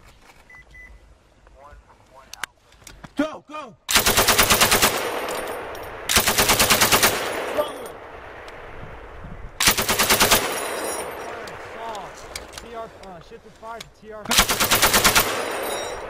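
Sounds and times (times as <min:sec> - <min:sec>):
machine gun bursts: 0:03.9 - 0:05.5, 0:06.1 - 0:07.6, 0:09.6 - 0:10.9, 0:14.3 - 0:16.0.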